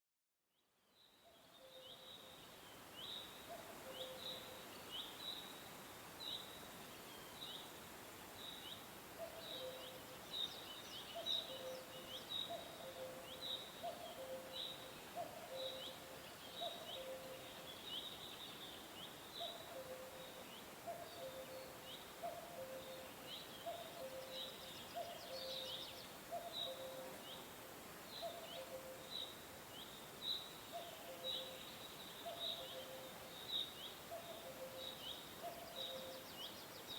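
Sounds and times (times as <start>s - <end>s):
steady background hiss: 0.8s - 36.9s.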